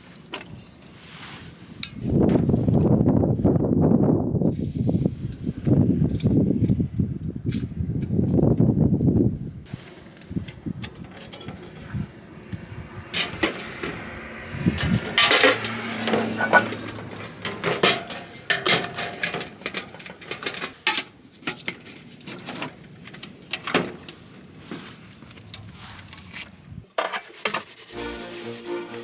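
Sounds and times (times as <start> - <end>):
objects being handled clattering: 9.7 - 12.1, 13.2 - 26.3.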